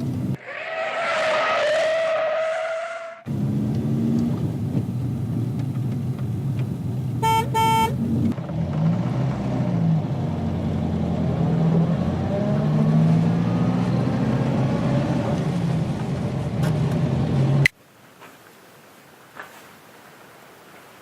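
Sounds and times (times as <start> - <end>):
vehicle engine and road drone: 0.0 - 1.0, 1.6 - 17.8.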